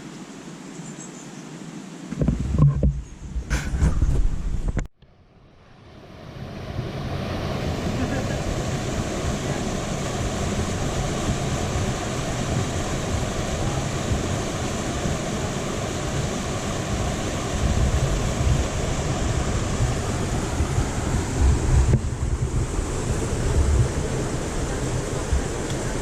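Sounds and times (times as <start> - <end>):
wind buffeting microphone: 2.1 - 4.9, 6.2 - 26.0
waterfall roaring: 6.5 - 26.0.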